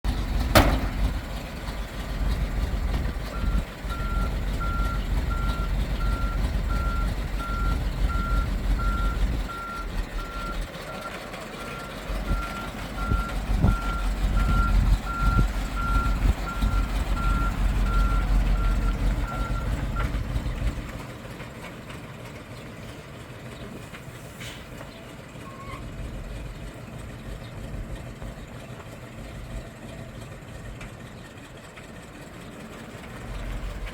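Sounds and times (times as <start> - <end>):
heavy engine rumble: 0.0 - 33.9
truck reversing alarm beeping: 1.9 - 20.8.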